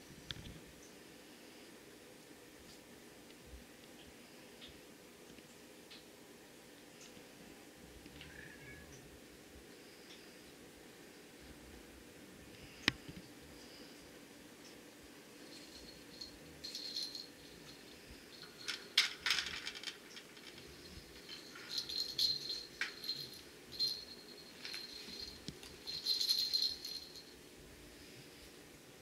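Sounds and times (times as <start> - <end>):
cat toy rattling: 15.5 - 27.3.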